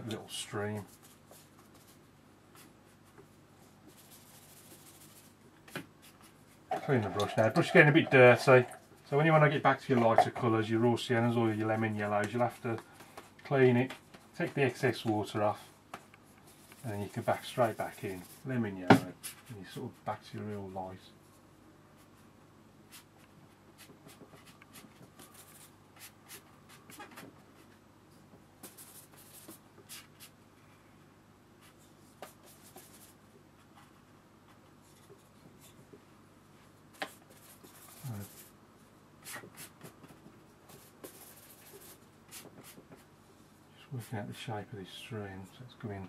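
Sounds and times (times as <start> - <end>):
brush scratching on paper: 0.8 - 5.4, 16.5 - 18.6, 23.8 - 27.7, 31.6 - 33.2, 37.0 - 38.6, 40.7 - 43.1.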